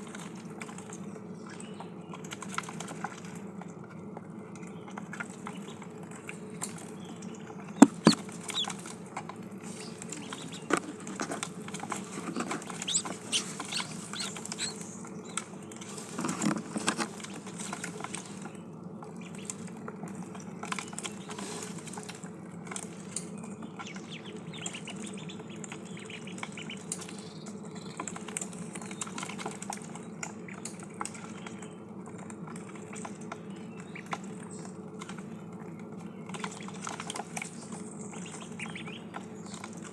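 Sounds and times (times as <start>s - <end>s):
ducklings peeping: 5.2s - 18.5s, 19.2s - 19.6s, 23.0s - 35.3s, 36.2s - 39.9s
steady low hum: 7.6s - 15.8s
sharp pecking taps: 7.8s - 8.8s, 9.9s - 15.4s.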